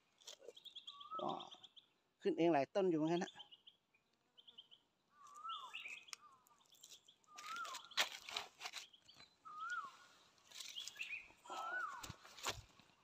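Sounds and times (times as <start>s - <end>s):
bird whistling and chirping: 0.5s - 1.7s, 5.2s - 6.4s, 7.2s - 8.0s, 9.1s - 12.1s
footsteps on dry leaves: 6.6s - 9.2s, 10.4s - 13.0s.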